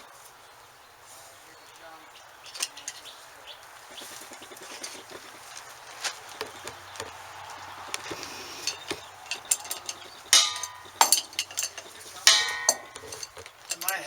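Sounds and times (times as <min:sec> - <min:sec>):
metal parts clicking and clinking: 0:02.6 - 0:03.1, 0:08.0 - 0:14.0
loud ringing metallic clanks: 0:08.0 - 0:14.0.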